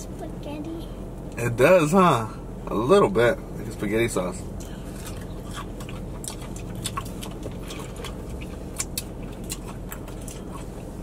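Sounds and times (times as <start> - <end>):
low steady hum: 0.0 - 11.0
people chewing food: 4.6 - 11.0.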